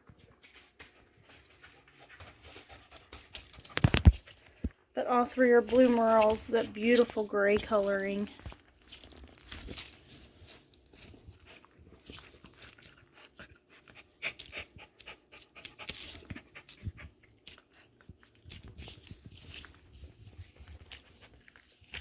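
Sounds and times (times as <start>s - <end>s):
small clicks and rustles: 0.1s - 4.8s, 5.4s - 22.0s
dog panting quietly: 0.4s - 4.8s, 10.1s - 22.0s.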